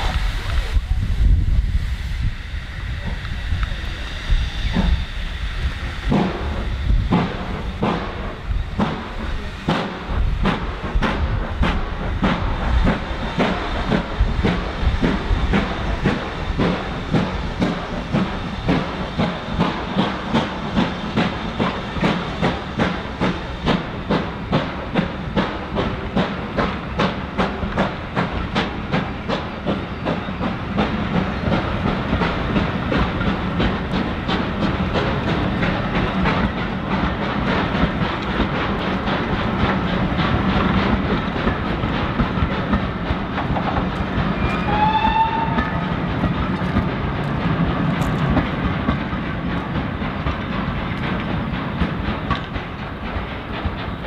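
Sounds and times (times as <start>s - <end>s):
train wheels clattering on track: 0.0s - 54.0s
high wheel squeal: 44.3s - 46.0s.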